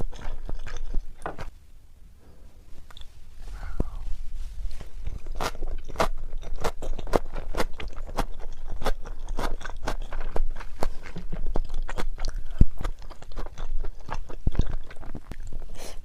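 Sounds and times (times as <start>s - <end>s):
crunchy food chewing: 0.0s - 1.6s, 4.8s - 15.8s.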